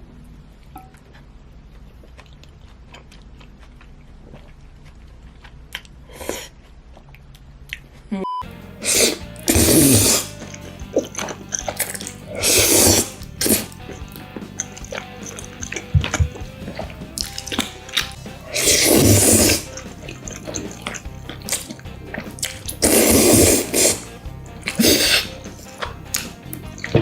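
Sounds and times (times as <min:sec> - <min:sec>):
soft chewing: 0:00.1 - 0:08.1, 0:09.0 - 0:27.0
wet mouth clicks: 0:00.7 - 0:07.9, 0:14.6 - 0:27.0
faint background music: 0:08.2 - 0:27.0
slurping noodles: 0:08.8 - 0:27.0.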